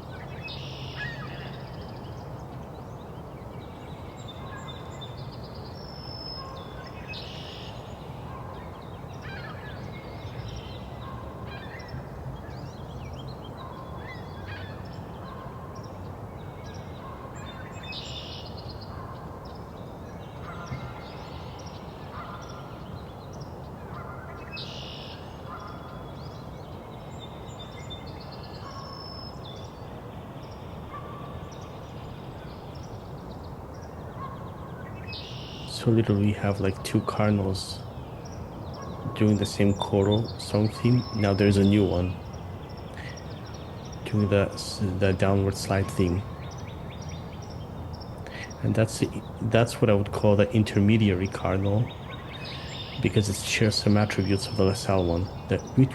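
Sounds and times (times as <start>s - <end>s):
songbirds singing: 0.0s - 55.9s
cardinals singing whistled phrases: 34.9s - 55.9s
geese honking: 38.8s - 42.2s, 44.1s - 46.4s, 48.3s - 55.9s.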